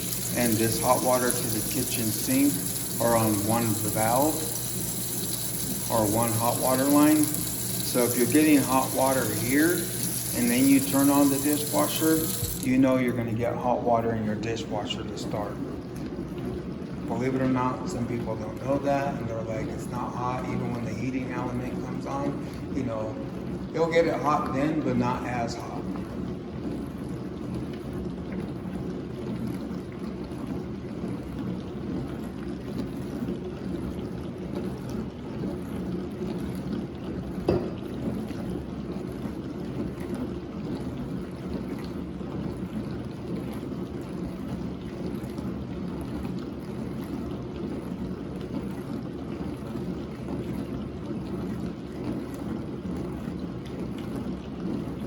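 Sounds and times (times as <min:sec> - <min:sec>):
dishwasher pump motor hum: 0:00.0 - 0:55.0
water moving inside dishwasher: 0:00.0 - 0:55.0.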